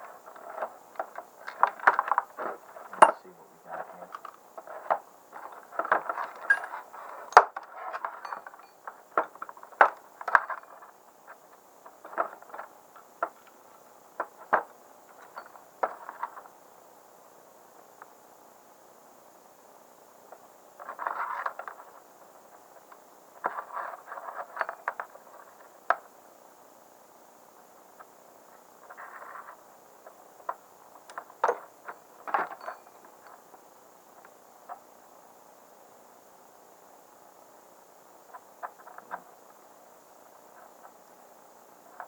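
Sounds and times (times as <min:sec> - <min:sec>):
metal clips scraping and clicking: 0:05.5 - 0:07.4.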